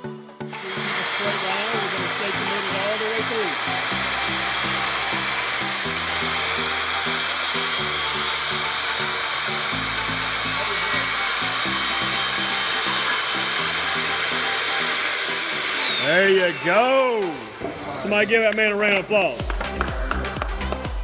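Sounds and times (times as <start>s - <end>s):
upbeat background music: 0.0s - 21.0s
circular saw cutting: 0.5s - 19.4s.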